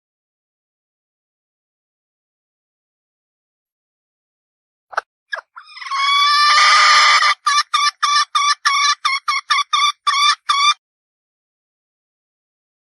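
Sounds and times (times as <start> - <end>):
hen clucking quickly: 5.3 - 10.8
hen calling: 5.4 - 10.8.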